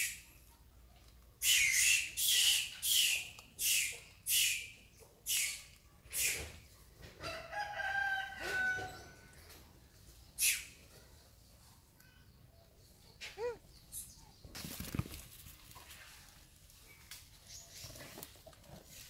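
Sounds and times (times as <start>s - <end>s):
harsh bird calls: 1.4s - 6.6s, 10.2s - 11.0s.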